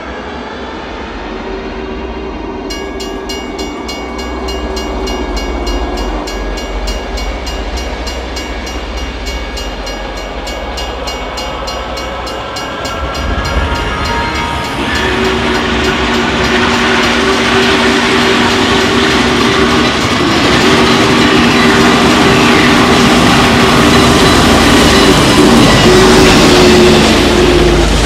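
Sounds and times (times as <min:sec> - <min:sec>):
train rumble: 0:00.0 - 0:28.0
train wheels clicking over rail joints: 0:02.7 - 0:28.0
train horn: 0:09.9 - 0:28.0.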